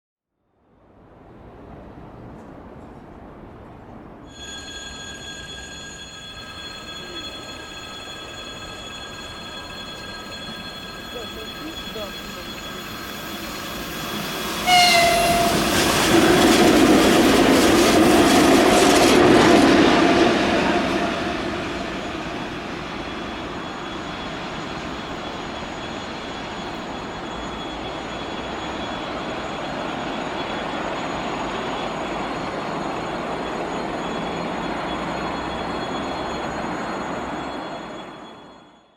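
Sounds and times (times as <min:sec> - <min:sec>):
locomotive horn: 0:14.6 - 0:16.2.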